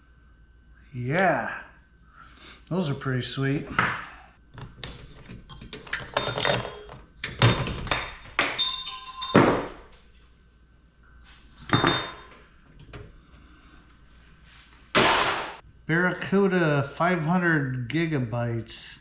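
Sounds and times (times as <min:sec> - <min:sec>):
metal parts knocking and clanking: 0:04.6 - 0:10.0.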